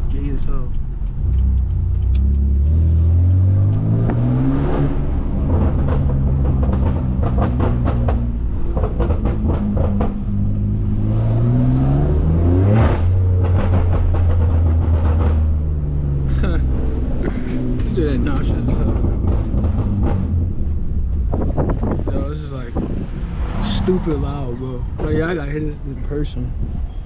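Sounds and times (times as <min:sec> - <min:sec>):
car engine revving: 0:00.2 - 0:26.9
exhaust pops and crackles: 0:05.3 - 0:10.6, 0:12.8 - 0:26.7.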